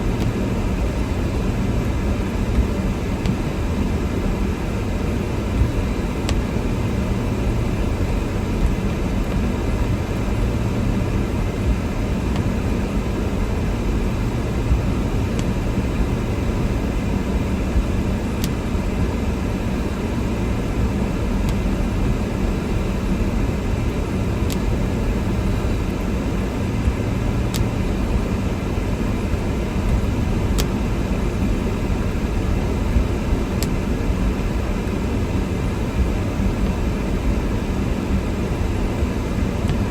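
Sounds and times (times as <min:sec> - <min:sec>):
car engine and road noise: 0:00.0 - 0:39.9
faint click: 0:33.6 - 0:33.8.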